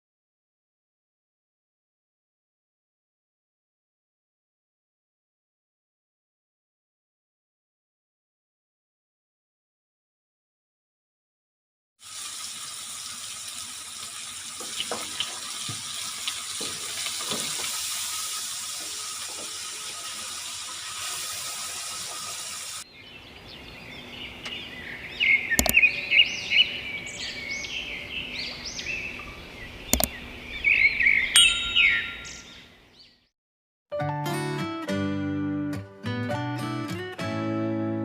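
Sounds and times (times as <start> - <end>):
tap water running into sink: 12.0 - 22.8
birds chirping: 22.9 - 33.3.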